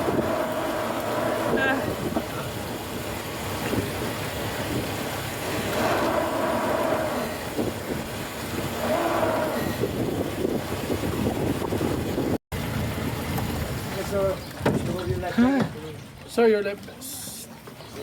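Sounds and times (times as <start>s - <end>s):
wind noise on microphone: 0.0s - 15.3s
boat engine running: 0.0s - 18.0s.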